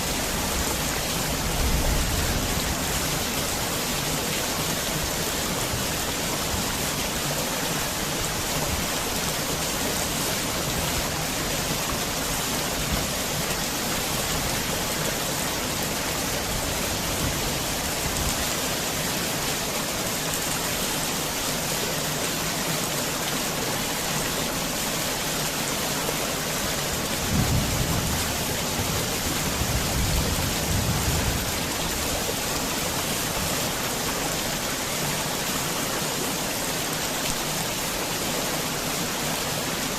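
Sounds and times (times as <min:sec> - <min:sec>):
heavy rain falling: 0:00.0 - 0:39.9
low rumble of thunder: 0:27.2 - 0:32.0.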